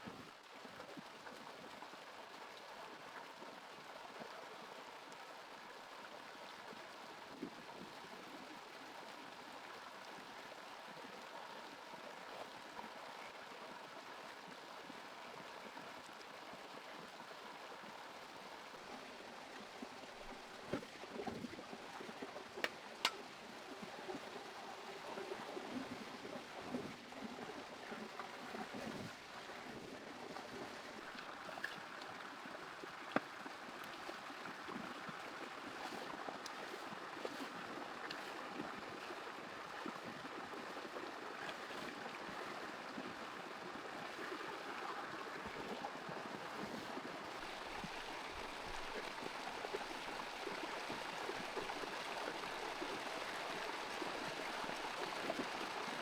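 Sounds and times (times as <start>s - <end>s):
water trickling and gurgling: 0.0s - 56.0s.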